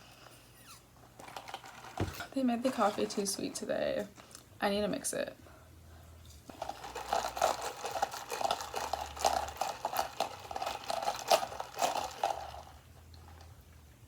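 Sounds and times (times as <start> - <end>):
ice rattling in a cup: 1.1 - 3.5, 6.5 - 13.5.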